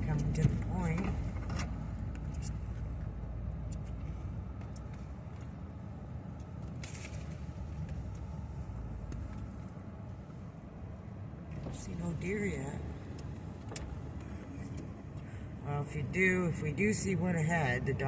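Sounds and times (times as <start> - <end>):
off-road vehicle engine running: 0.0 - 9.8.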